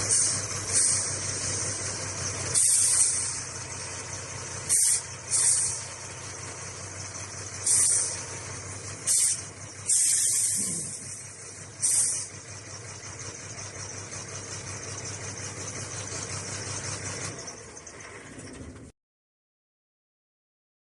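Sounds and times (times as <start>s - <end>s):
compressed air hisses: 0.0s - 1.2s, 2.5s - 3.5s, 4.7s - 5.9s, 7.6s - 8.2s, 9.0s - 12.3s
diesel truck engine idling: 0.0s - 18.9s.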